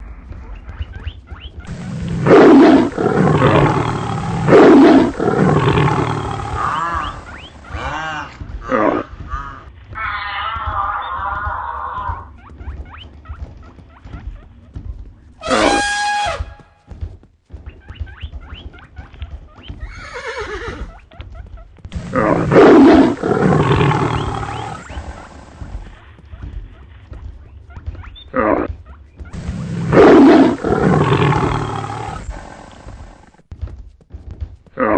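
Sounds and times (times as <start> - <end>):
running hooves drumming: 0.0 - 34.9
loud animal roars: 1.7 - 9.0, 22.0 - 24.9, 29.4 - 32.9.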